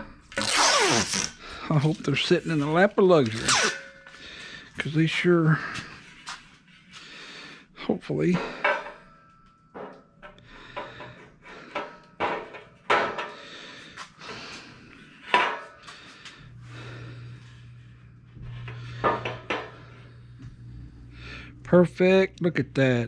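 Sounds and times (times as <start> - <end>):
low steady hum: 14.3 - 23.0.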